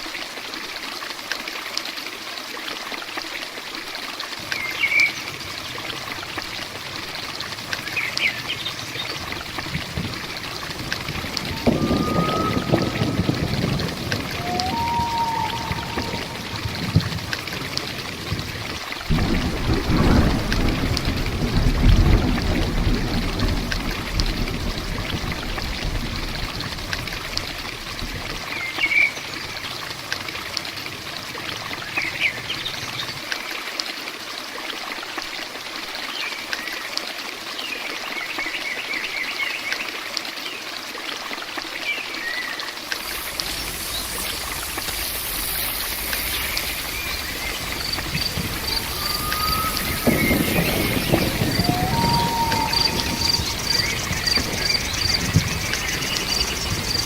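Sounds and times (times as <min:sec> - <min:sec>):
heavy rain pattering: 0:02.2 - 0:34.6, 0:41.3 - 0:57.0
bird chirps: 0:11.4 - 0:17.0, 0:43.0 - 0:57.0.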